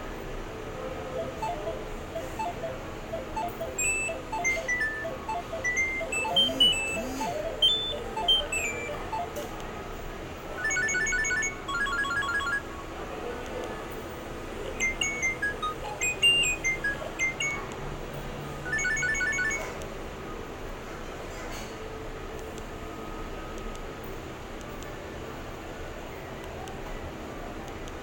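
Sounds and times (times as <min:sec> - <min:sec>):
phone ringtone melody: 0:01.2 - 0:09.6, 0:10.6 - 0:12.6, 0:14.6 - 0:17.7, 0:18.6 - 0:19.8.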